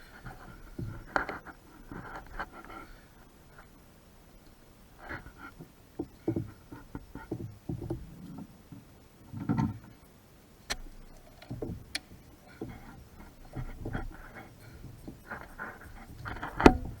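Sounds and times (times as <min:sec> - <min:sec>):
knocks and clunks of tools: 0:16.2 - 0:17.0.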